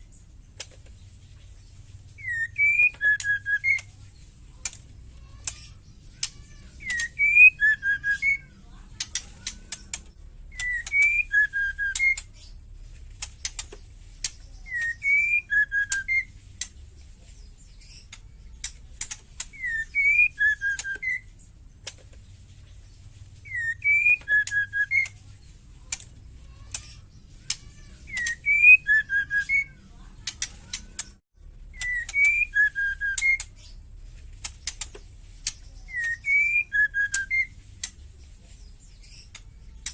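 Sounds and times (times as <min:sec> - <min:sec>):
bird whistled phrase: 0:02.2 - 0:03.9, 0:06.2 - 0:09.9, 0:10.5 - 0:12.3, 0:14.6 - 0:16.4, 0:19.5 - 0:21.3, 0:23.4 - 0:25.2, 0:27.5 - 0:30.0, 0:30.7 - 0:33.5, 0:35.6 - 0:37.6.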